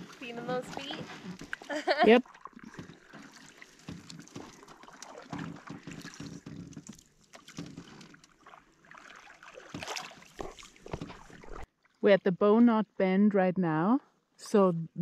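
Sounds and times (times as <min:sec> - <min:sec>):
water splashes: 0:00.0 - 0:12.1
wind: 0:00.0 - 0:15.0
knocks on canoe hull: 0:05.2 - 0:07.9.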